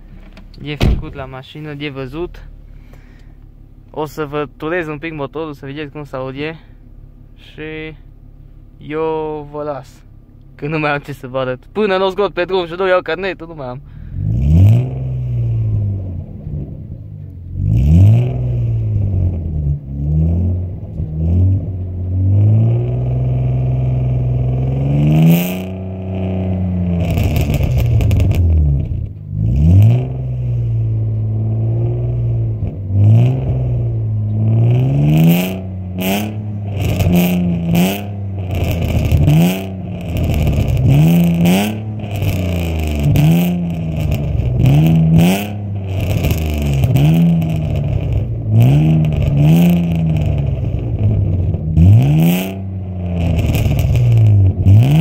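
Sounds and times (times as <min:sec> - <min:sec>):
exhaust crackles: 0:00.0 - 0:55.0
car engine revving: 0:13.7 - 0:55.0.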